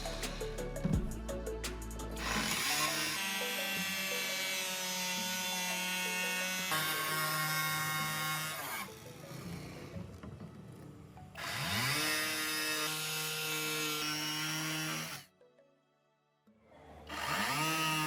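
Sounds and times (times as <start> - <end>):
power tool motor whining: 2.2 - 10.3, 11.4 - 15.2, 17.1 - 18.0.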